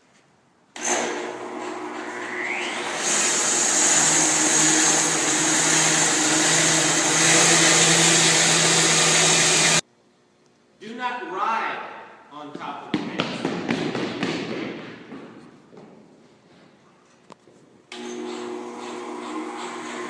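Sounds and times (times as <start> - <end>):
bandsaw mill running: 0.8 - 9.8, 17.9 - 20.0.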